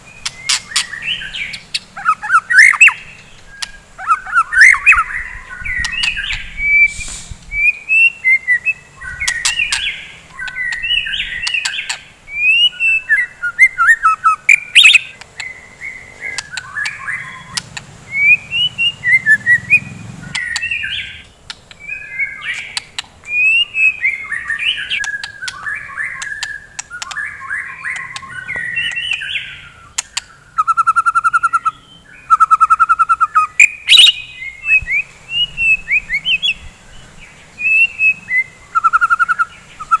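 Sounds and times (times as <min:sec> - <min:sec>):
fast rattling bird notes: 0:00.0 - 0:31.5
bird singing whistled phrases: 0:00.1 - 0:21.2, 0:21.8 - 0:36.7, 0:37.6 - 0:40.0
sharp bird clicks: 0:00.2 - 0:08.1, 0:09.0 - 0:35.0.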